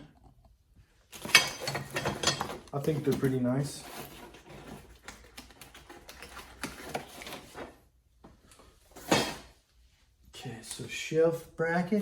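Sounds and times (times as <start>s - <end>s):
packaging rustle or clunk: 1.1s - 7.8s.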